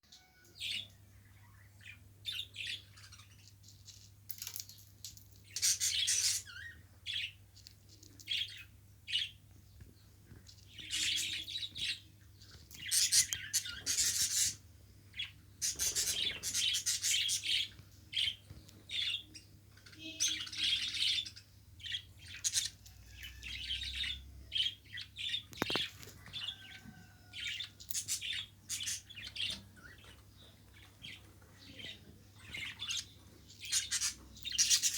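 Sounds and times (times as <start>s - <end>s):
budgerigar chirping: 12.8s - 14.6s, 32.4s - 34.9s.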